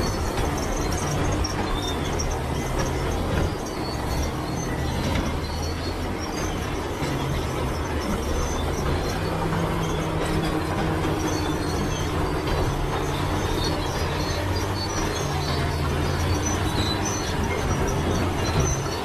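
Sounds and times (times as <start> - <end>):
diesel engine running: 0.0 - 19.0
steel tracks clanking: 0.0 - 19.0
track links squeaking: 0.0 - 19.0.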